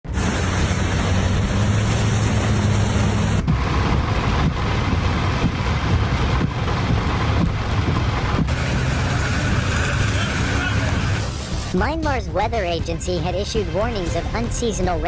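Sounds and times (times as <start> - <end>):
wind rumbling on microphone: 0.1 - 11.7
rain: 0.1 - 15.0.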